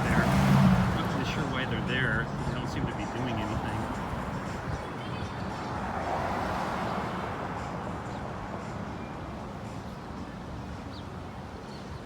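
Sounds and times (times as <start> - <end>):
passing vehicle: 0.0 - 9.1.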